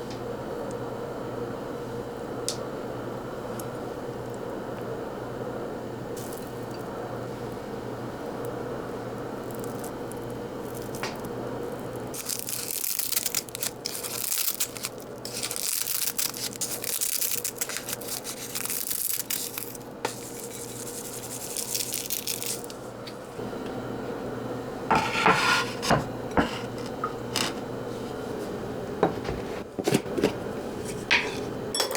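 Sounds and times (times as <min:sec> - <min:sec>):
steady low hum: 0:00.0 - 0:31.9
dishes clinking: 0:30.9 - 0:31.9.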